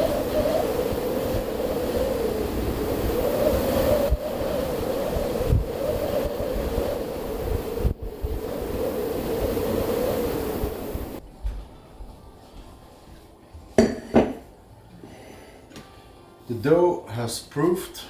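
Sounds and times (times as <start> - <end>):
storm wind howling: 0.0 - 11.2.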